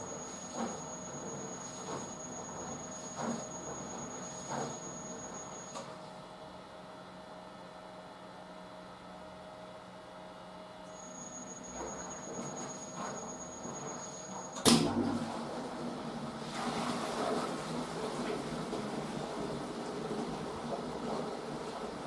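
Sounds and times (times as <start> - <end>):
washing machine motor hum: 0.0 - 6.4, 10.9 - 22.0.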